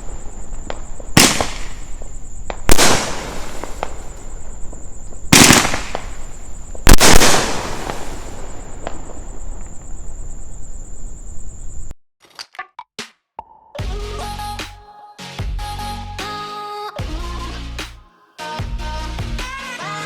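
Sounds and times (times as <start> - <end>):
fireworks shell bursts: 0.0 - 10.0
fireworks crackle and hiss: 0.0 - 11.9.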